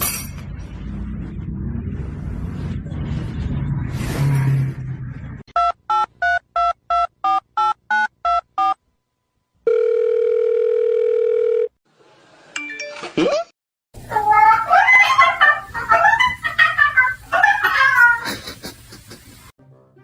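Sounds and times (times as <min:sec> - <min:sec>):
rushing noise: 0:00.0 - 0:05.4
telephone ringing tone: 0:09.6 - 0:11.8.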